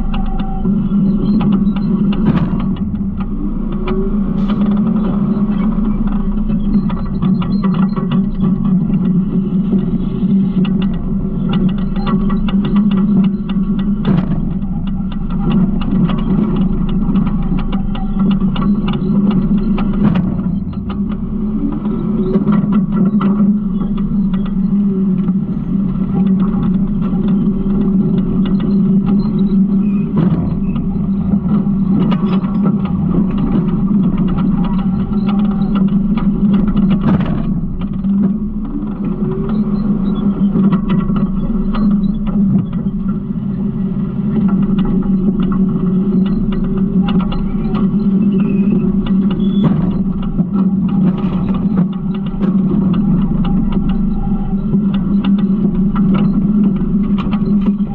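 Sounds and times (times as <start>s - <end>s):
garbage truck engine drone: 0.0s - 57.9s
metal clanks and rattles: 0.0s - 57.9s.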